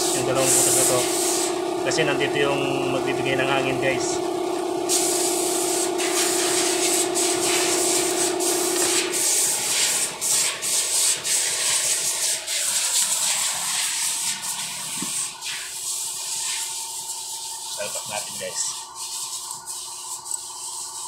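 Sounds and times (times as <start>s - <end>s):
sanding strokes: 0.0s - 4.1s, 4.9s - 21.0s.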